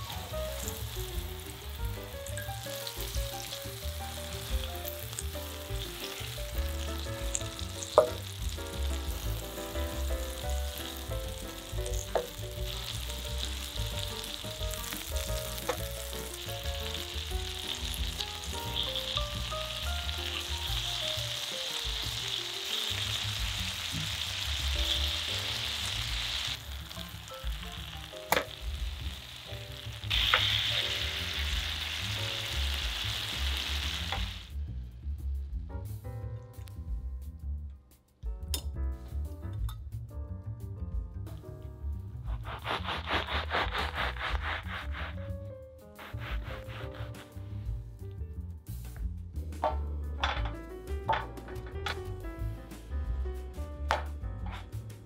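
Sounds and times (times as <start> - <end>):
sauce bubbling: 0.0 - 34.5
meat sizzling in oil: 0.0 - 34.6, 42.3 - 45.2, 46.0 - 47.3.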